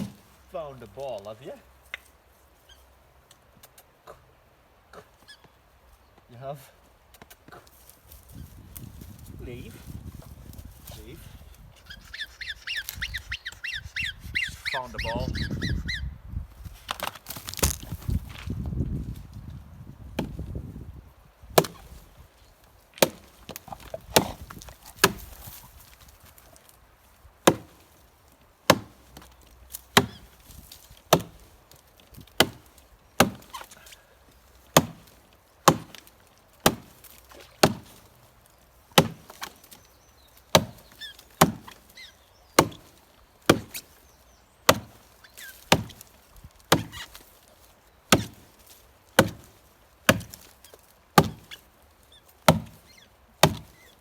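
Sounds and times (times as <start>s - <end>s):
axe chopping into log: 0.0s - 0.4s, 16.9s - 18.5s, 20.2s - 20.6s, 21.5s - 22.1s, 23.0s - 26.1s, 27.4s - 28.0s, 28.7s - 34.0s, 34.7s - 38.2s, 38.9s - 39.8s, 40.4s - 41.9s, 42.6s - 44.0s, 44.7s - 47.4s, 48.1s - 51.6s, 52.4s - 53.9s.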